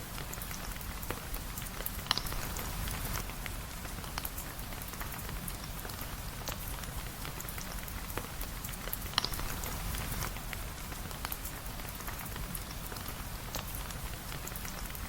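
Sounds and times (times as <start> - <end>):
rain hissing: 2.2 - 3.9.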